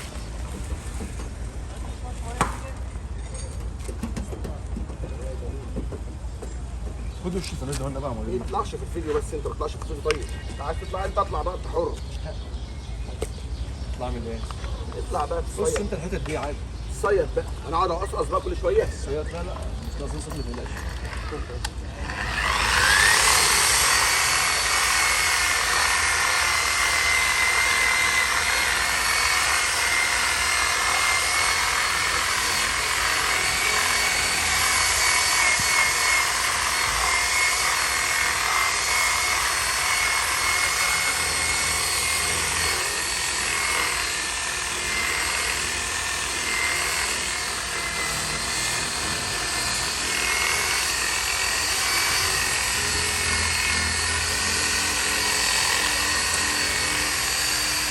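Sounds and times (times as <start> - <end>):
power tool motor whirring: 18.9 - 57.9.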